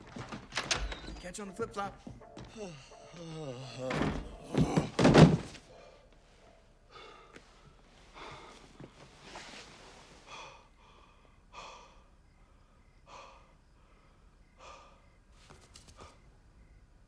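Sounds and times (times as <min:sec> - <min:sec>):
man breathing heavily: 0:02.0 - 0:06.0, 0:06.8 - 0:09.6, 0:10.2 - 0:15.3.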